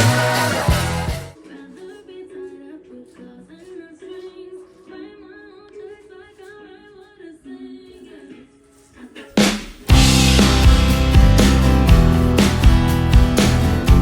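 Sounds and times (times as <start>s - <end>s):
person singing: 0.0s - 10.6s
quiet background music: 0.0s - 14.0s.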